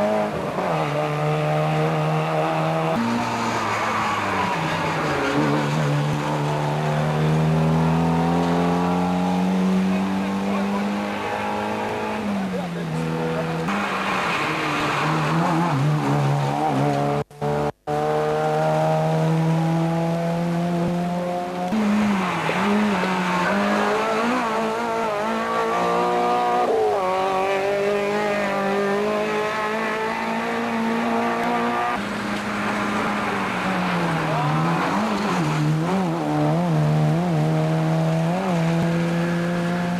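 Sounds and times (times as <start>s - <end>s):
rally car engine accelerating: 0.0s - 39.9s
rally car engine running hard: 15.2s - 33.2s.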